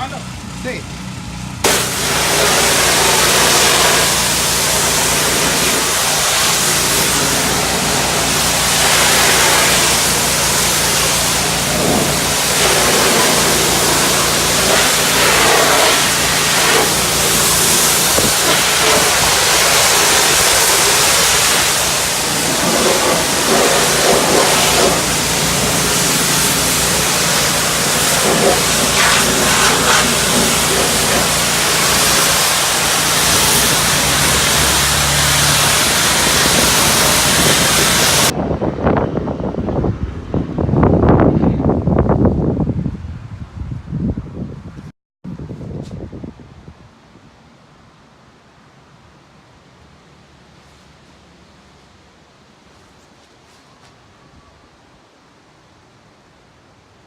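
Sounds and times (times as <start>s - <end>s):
engine humming: 0.0s - 38.4s
pressure washer water spray: 1.6s - 38.4s.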